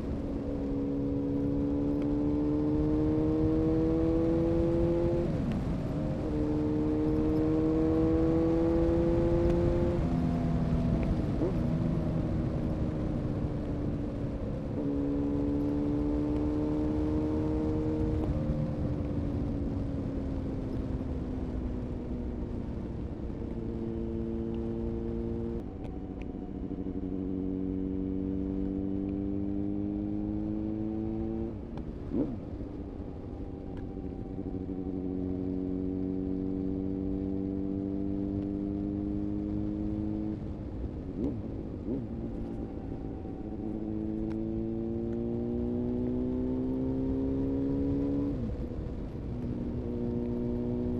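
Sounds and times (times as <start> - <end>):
motorcycle engine revving: 0.7 - 5.4, 6.0 - 10.3, 14.8 - 18.6, 23.5 - 25.6, 27.0 - 32.4, 34.2 - 40.4, 41.2 - 50.9.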